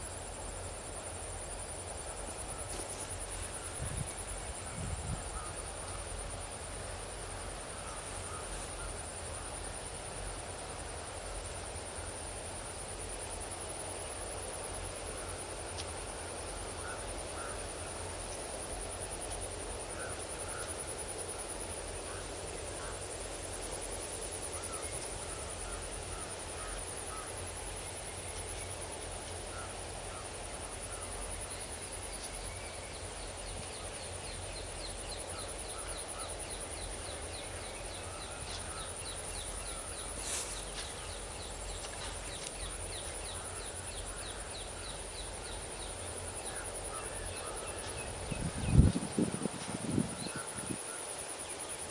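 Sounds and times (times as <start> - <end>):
high pulsing insect buzz: 16.3 - 51.9
low wind rumble: 47.9 - 50.8.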